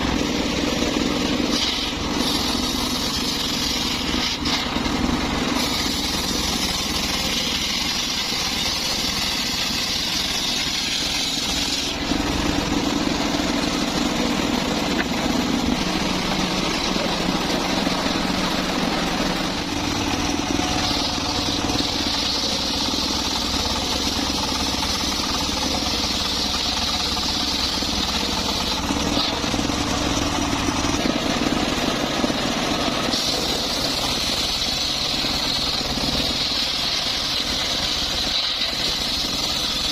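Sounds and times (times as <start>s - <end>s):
circular saw machine drone: 0.0s - 39.9s
saw blade hissing in wood: 0.0s - 39.9s.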